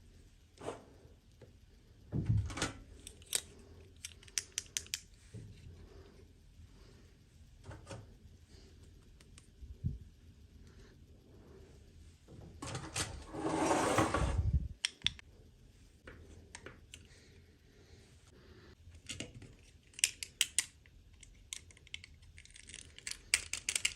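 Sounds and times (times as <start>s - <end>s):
toy pieces clicking and tapping: 4.0s - 5.1s, 19.9s - 23.9s.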